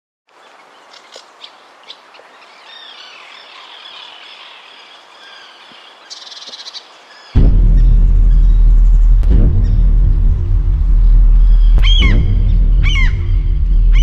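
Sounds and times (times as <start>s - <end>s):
soft outdoor hiss: 0.3s - 14.0s
birds chirping and singing: 11.2s - 14.0s.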